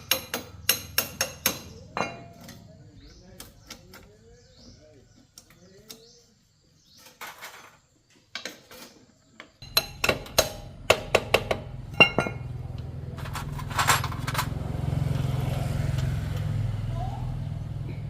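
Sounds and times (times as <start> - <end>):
metal tools clinking: 9.6 - 10.7, 11.9 - 14.6.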